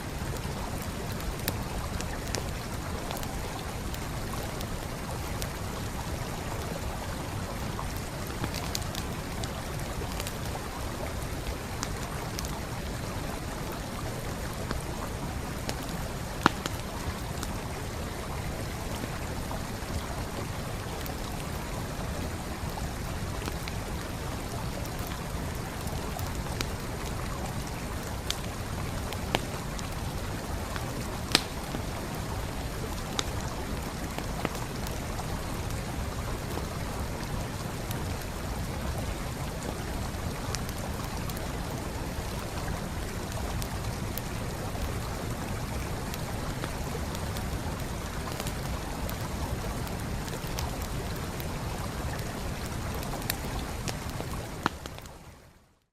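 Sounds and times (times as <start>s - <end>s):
stream flowing: 0.0s - 55.5s
burning wood popping: 31.2s - 31.9s.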